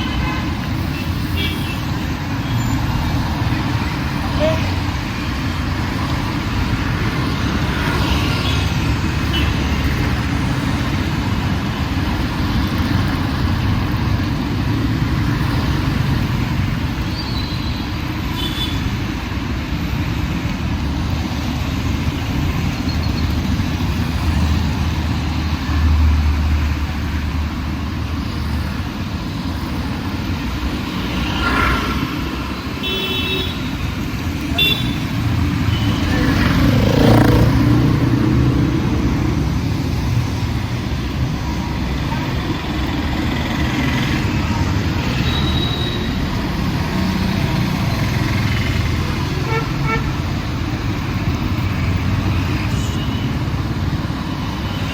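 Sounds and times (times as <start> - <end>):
traffic rumble: 0.0 - 54.9
vehicle horn toots: 34.6 - 35.0, 49.4 - 50.2.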